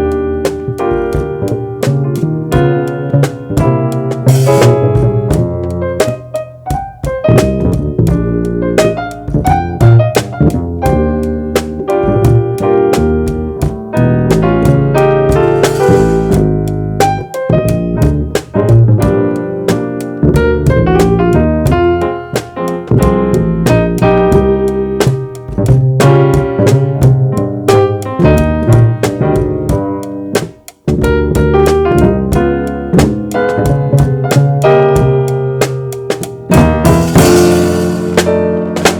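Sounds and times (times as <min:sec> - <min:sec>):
keyboard chords: 0:00.0 - 0:38.9
walking bass line: 0:00.0 - 0:38.9
cymbal and drum strokes: 0:15.4 - 0:16.4.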